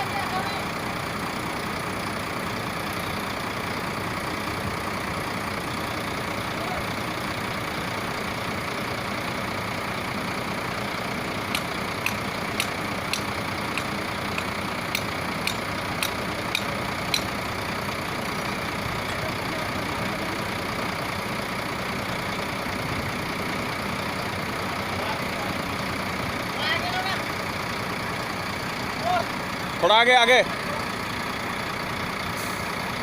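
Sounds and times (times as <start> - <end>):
truck engine idling: 0.0 - 33.0
sharp clicks: 11.5 - 17.3.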